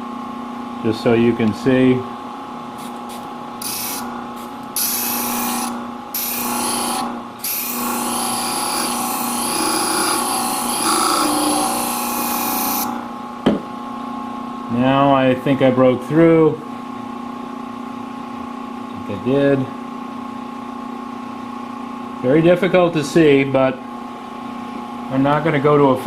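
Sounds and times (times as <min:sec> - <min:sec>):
blade grinding hiss: 0:02.8 - 0:12.9.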